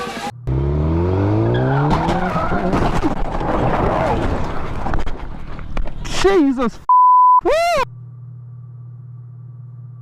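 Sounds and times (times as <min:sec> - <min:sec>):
low-pitched hum: 0:07.9 - 0:10.0.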